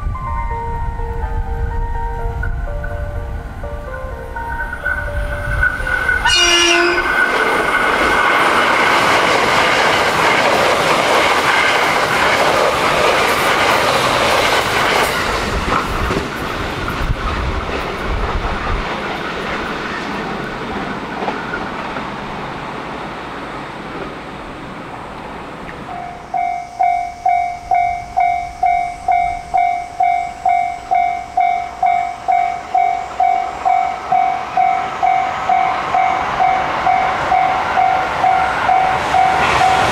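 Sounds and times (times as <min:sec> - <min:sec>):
train passing with wheel clatter: 0:00.0 - 0:39.9
train horn blast: 0:06.2 - 0:07.3.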